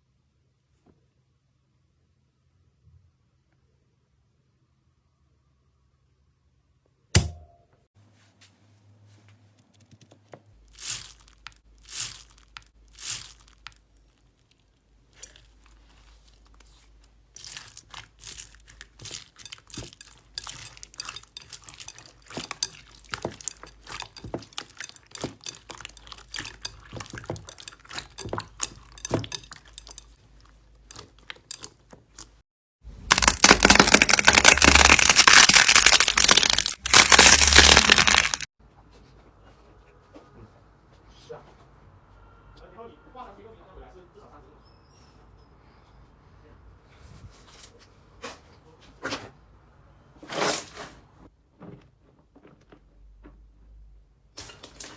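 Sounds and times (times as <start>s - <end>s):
slime crackling and popping: 10.7s - 30.2s, 33.1s - 38.5s
slime squishing: 10.7s - 32.4s, 33.1s - 38.5s.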